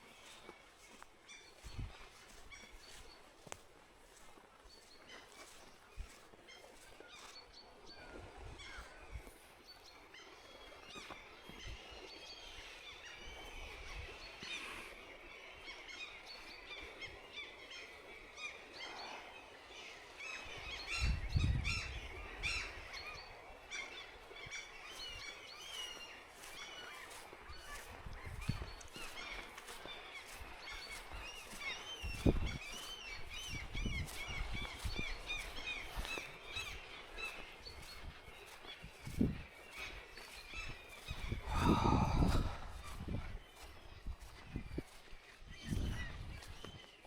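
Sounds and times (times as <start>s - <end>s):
bird chirps and calls: 25.0s - 45.0s.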